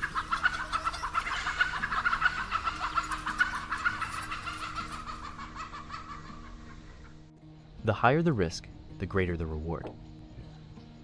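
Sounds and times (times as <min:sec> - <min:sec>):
chickens squawking and clucking: 0:00.0 - 0:07.3.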